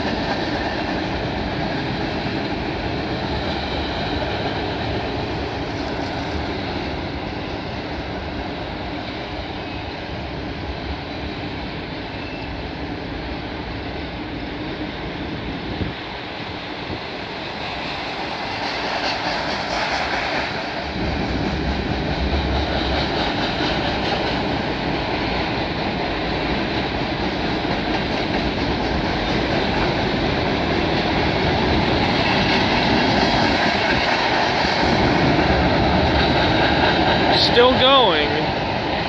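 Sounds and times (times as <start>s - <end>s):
freight train rolling over bridge: 0.0s - 39.0s.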